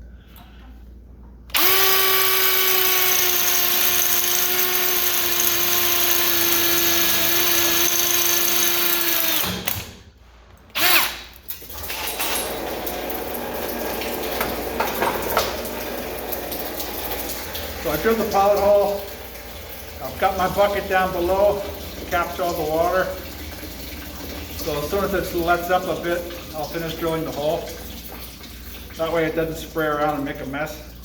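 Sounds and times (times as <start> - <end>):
power drill drilling into pipe: 1.5 - 9.7, 10.8 - 11.3
water hissing into bucket: 12.8 - 31.0.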